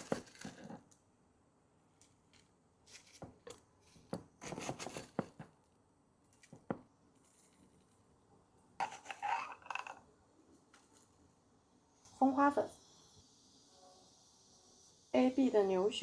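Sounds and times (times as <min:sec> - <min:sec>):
containers clicking and clinking: 0:08.8 - 0:10.1.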